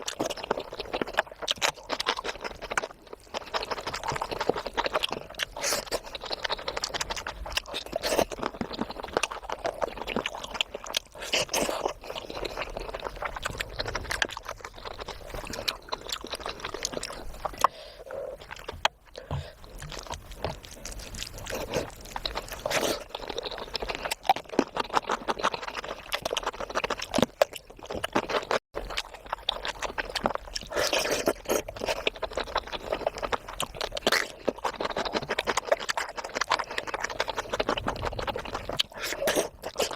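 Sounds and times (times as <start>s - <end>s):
chewing and wet mouth sounds: 0.0s - 39.9s.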